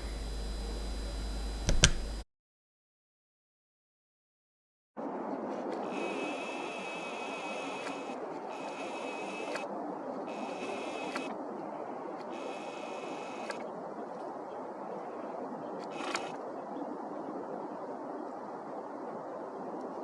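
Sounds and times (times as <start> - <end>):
camera zoom motor whining: 0.0 - 2.2
zoom motor clicks: 0.0 - 2.2.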